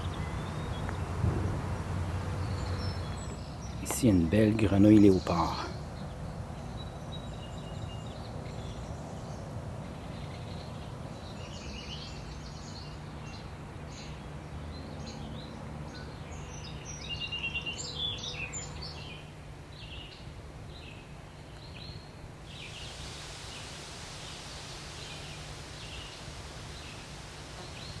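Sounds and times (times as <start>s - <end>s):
low background rumble: 0.0s - 11.5s
birds chirping and singing: 0.0s - 21.0s.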